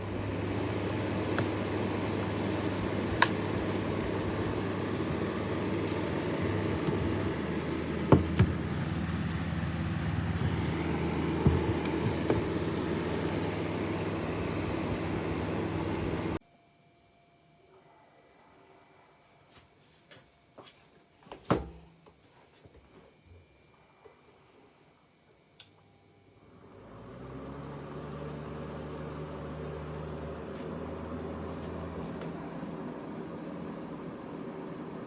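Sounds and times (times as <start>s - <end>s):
fan heater motor hum: 0.0s - 16.4s, 23.0s - 35.0s.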